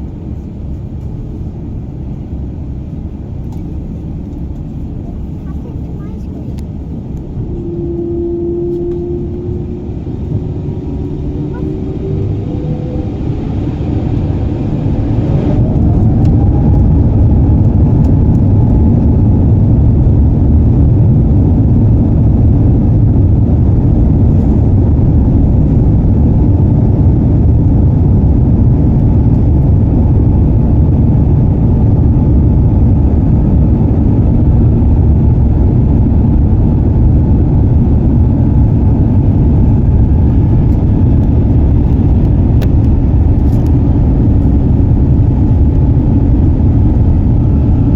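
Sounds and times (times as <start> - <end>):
take-off roll rumble: 0.0 - 47.9
jet engines spooling up: 6.3 - 20.3.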